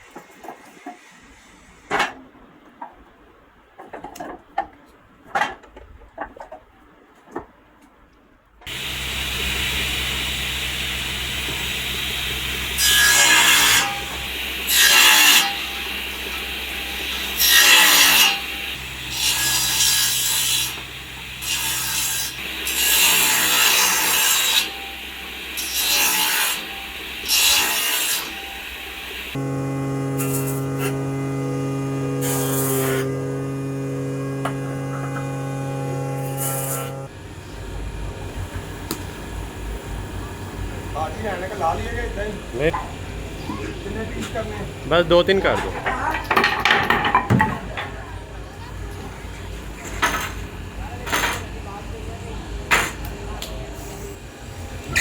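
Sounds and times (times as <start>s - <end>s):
machine cutting into wood: 8.7s - 37.1s
woodworking machine humming: 8.7s - 55.0s.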